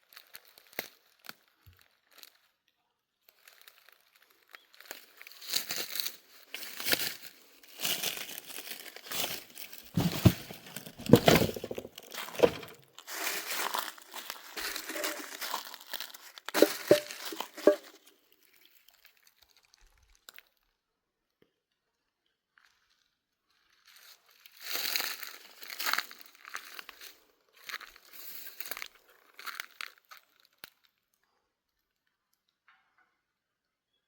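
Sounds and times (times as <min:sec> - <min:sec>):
rustling and crinkling: 0:03.3 - 0:18.6.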